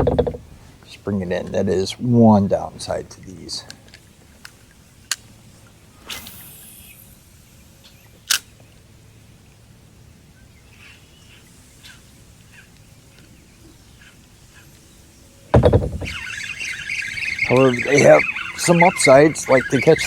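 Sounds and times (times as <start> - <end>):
brief swish: 6.0 - 6.9
faint bird chirps: 10.4 - 20.0.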